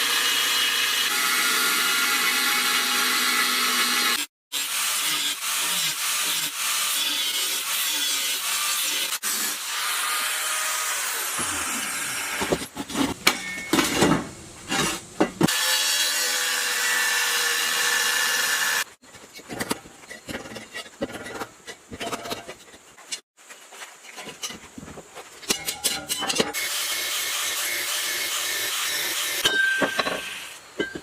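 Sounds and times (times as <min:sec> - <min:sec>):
tools grinding with loud rasping: 0:00.0 - 0:23.3, 0:24.0 - 0:31.0
scattered tapping and scraping: 0:19.0 - 0:26.6.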